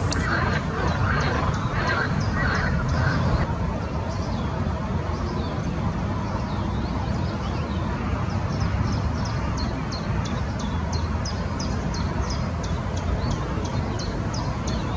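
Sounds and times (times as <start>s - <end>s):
small songbird calling: 0.0s - 3.5s
steady low rumble: 0.0s - 14.5s.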